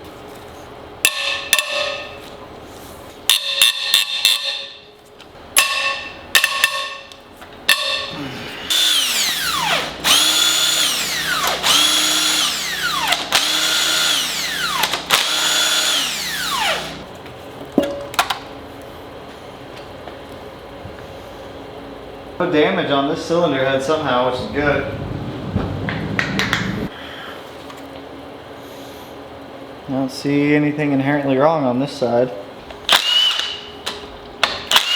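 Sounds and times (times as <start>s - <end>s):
power tool motor running: 8.5s - 17.1s, 32.9s - 33.6s, 34.7s - 34.9s.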